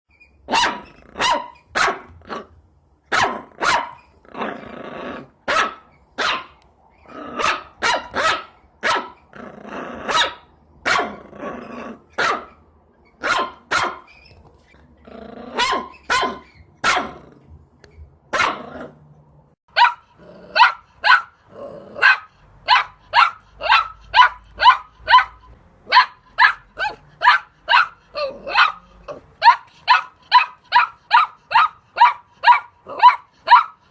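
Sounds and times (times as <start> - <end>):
puppies growling: 4.2 - 5.4, 9.2 - 10.2, 11.0 - 12.2, 15.0 - 16.4, 20.1 - 25.6, 26.4 - 31.7
puppies yapping: 19.7 - 21.4, 22.0 - 33.9.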